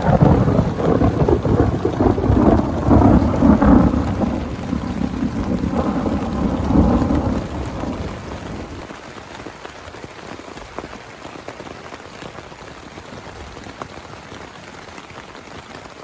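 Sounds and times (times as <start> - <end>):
thunder rumbling: 0.0 - 8.9
steady rain: 0.0 - 16.0.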